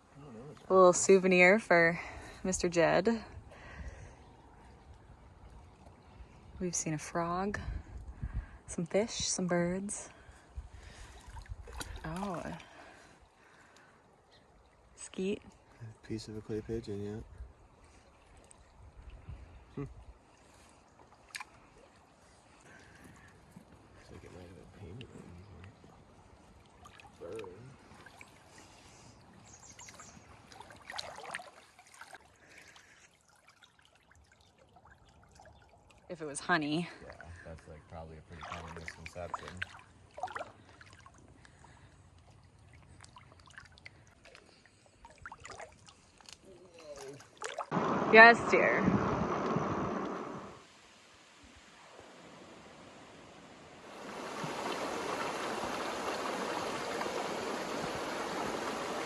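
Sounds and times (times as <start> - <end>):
water splash: 10.8 - 12.9, 29.8 - 36.1, 38.3 - 41.2, 43.0 - 52.8, 53.8 - 59.0
water trickling over stones: 10.8 - 48.3, 53.9 - 59.0.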